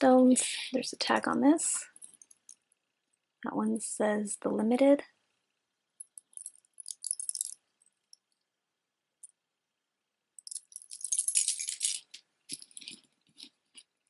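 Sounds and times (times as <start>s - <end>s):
jewelry jangling and clinking: 1.8s - 2.6s, 6.0s - 7.9s, 10.4s - 13.5s.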